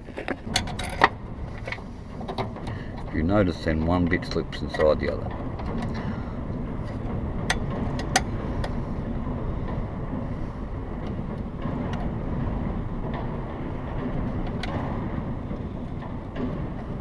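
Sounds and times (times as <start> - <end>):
engine parts clicking together: 0.0 - 8.9
low background rumble: 0.0 - 17.0.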